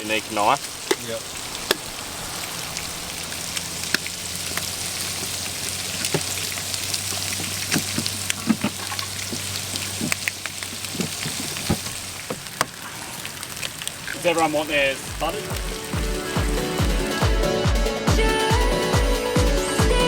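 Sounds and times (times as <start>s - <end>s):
food sizzling with pops: 0.0s - 17.6s
low hum: 0.6s - 6.0s.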